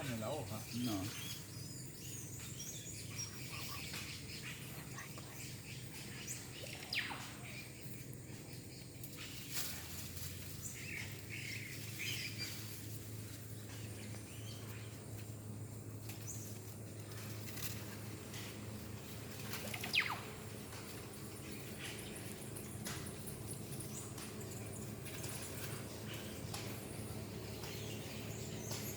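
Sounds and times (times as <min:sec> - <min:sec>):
steady low hum: 0:00.0 - 0:28.9
high falling animal calls: 0:19.6 - 0:20.4.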